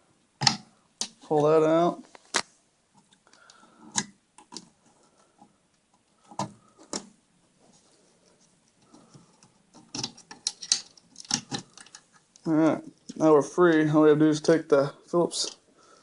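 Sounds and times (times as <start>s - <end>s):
plastic connectors clicking: 8.8s - 13.2s.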